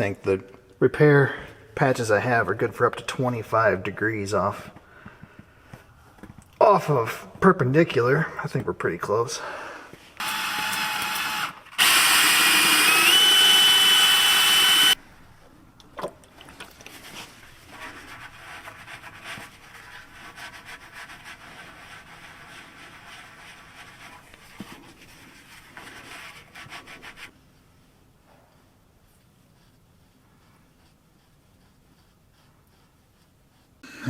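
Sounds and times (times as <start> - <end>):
pneumatic air tool whining: 10.2 - 15.0
rubbing and scraping: 16.4 - 27.8.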